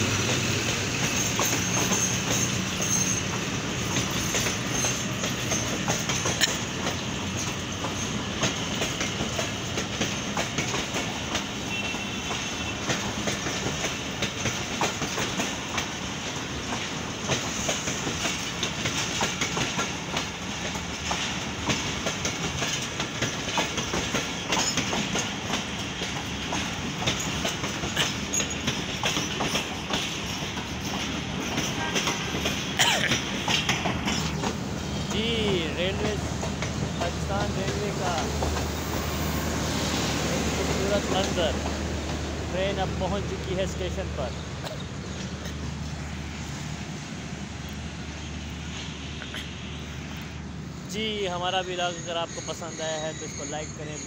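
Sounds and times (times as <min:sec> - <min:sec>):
wheels clicking over rail joints: 0:00.0 - 0:39.5
train coaches rumbling past: 0:00.0 - 0:54.0.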